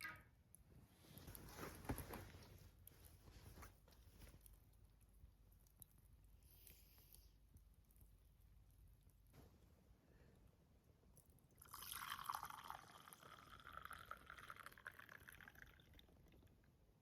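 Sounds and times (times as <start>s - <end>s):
liquid pouring into container: 11.5s - 16.7s.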